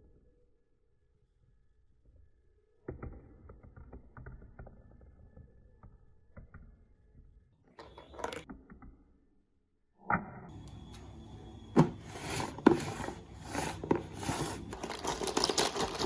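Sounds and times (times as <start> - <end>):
bright marble clatter: 11.8 - 16.0
marbles rolling on plastic track: 12.1 - 16.0.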